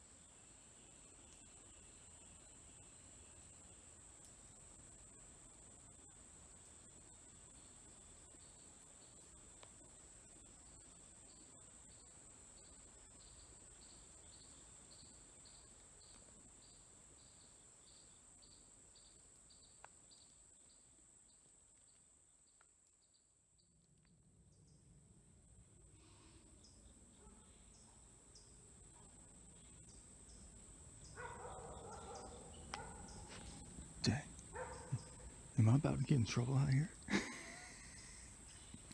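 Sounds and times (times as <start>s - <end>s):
insect chirping: 0.0s - 38.9s
insects buzzing: 0.0s - 38.9s
dog barking: 31.2s - 35.4s.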